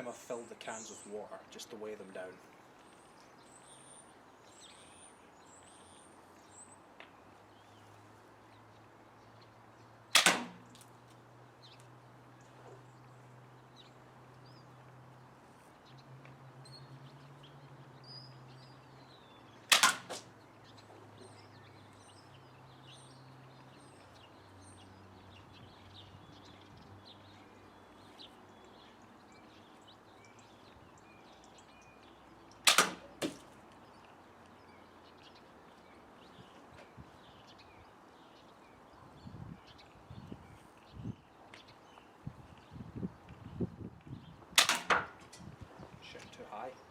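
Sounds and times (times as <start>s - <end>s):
faint birdsong: 0.0s - 46.9s
slingshot snap: 10.2s - 10.9s, 19.7s - 20.3s, 32.7s - 33.5s, 44.6s - 45.1s.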